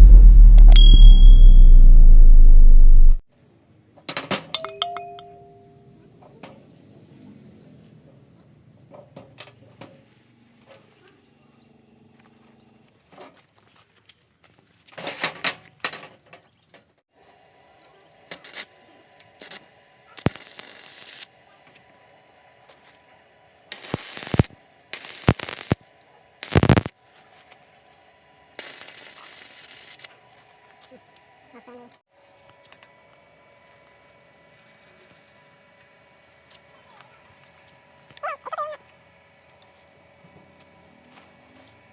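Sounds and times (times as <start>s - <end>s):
welding arc crackling: 20.2s - 21.3s, 23.7s - 25.8s, 26.4s - 26.9s, 28.6s - 30.1s.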